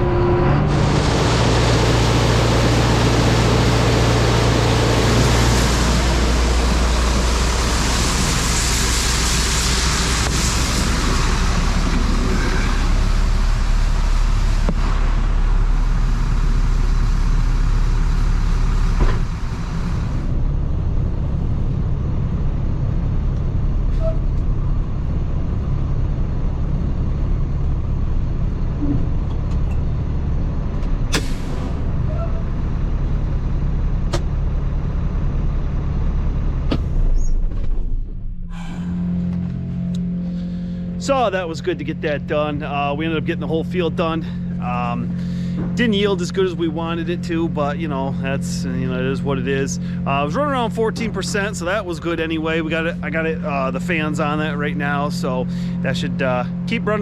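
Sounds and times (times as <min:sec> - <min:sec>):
loud rushing noise: 0:00.0 - 0:16.8
diesel engine running: 0:00.0 - 0:57.0.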